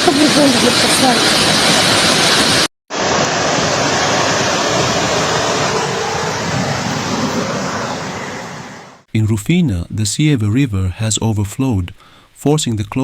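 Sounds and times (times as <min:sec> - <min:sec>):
floodwater rushing: 0:00.0 - 0:09.1.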